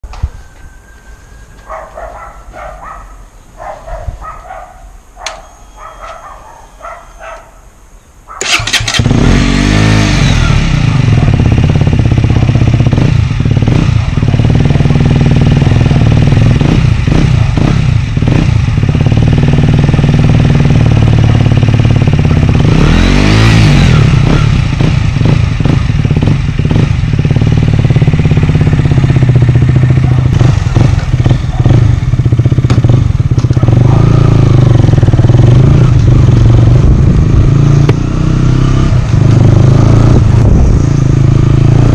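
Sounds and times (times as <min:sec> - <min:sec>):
motorcycle engine revving: 0:08.4 - 0:41.9.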